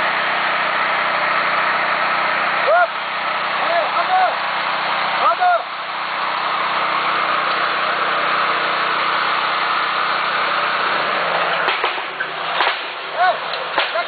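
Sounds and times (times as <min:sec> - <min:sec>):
small engine running: 0:00.0 - 0:14.0
sharp metallic knocks: 0:11.6 - 0:14.0.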